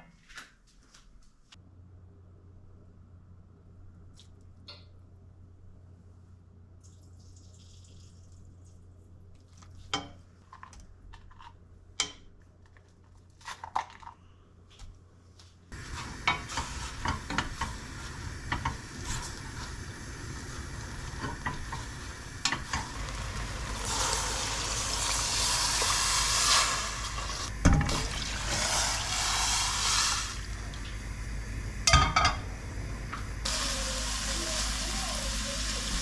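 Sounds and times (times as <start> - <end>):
utensil stirring food: 15.7 - 36.0
food sizzling in a frying pan: 15.8 - 36.0.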